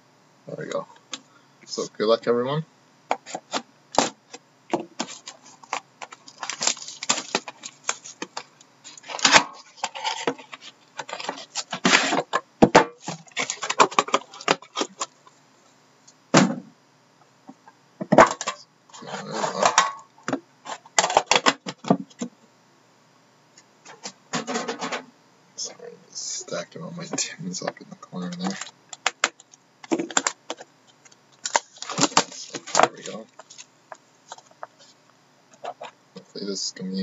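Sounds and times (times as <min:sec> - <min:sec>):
packaging rustling: 0:03.2 - 0:12.3, 0:13.0 - 0:15.2, 0:28.2 - 0:36.0.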